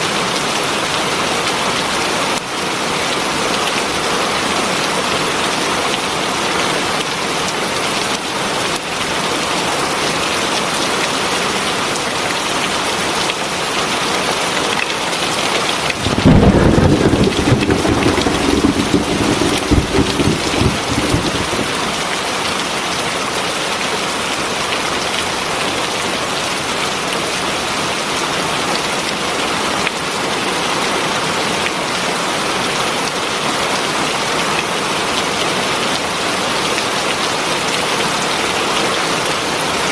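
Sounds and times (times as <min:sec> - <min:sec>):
heavy rain: 0:15.8 - 0:22.4
thunder clap rumbling: 0:15.9 - 0:22.1.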